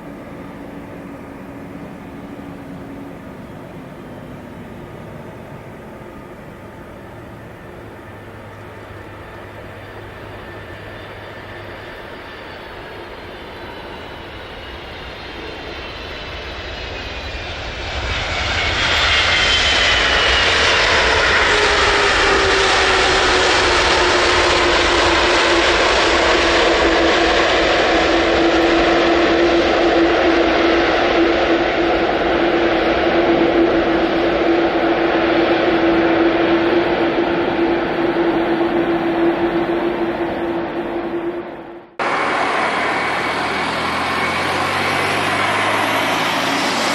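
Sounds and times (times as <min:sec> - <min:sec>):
jet aircraft engines whining: 0:00.0 - 0:46.9.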